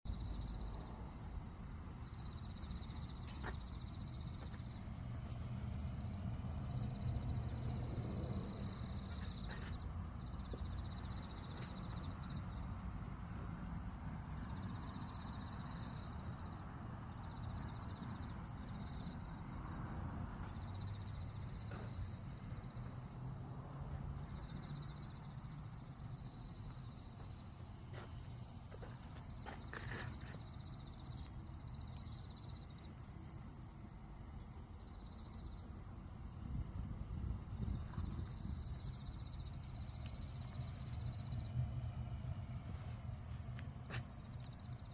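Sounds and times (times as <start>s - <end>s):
firewood burning in stove: 0.4s - 23.4s, 24.1s - 44.9s
crackles and pops of fire: 2.0s - 13.5s, 26.0s - 33.9s, 35.2s - 44.9s.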